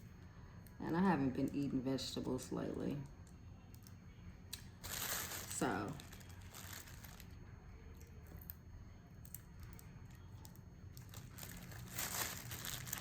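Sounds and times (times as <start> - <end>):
packaging rustling: 4.8 - 7.4, 11.0 - 13.0.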